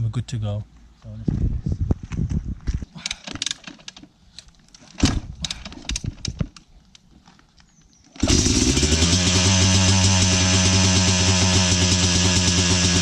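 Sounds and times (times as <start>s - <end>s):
dirt bike engine starting and running: 8.2s - 13.0s.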